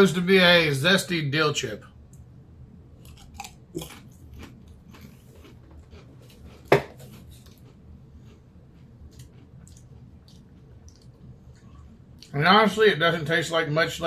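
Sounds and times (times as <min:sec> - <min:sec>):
man chewing crisps: 0:02.9 - 0:12.5.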